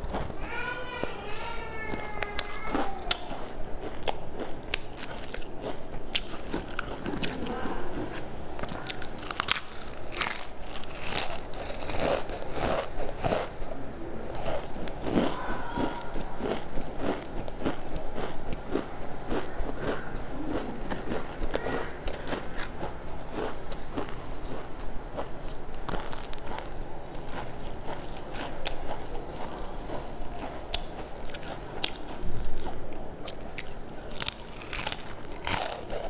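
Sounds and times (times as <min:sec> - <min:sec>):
crunchy snack eating: 0:01.3 - 0:36.0.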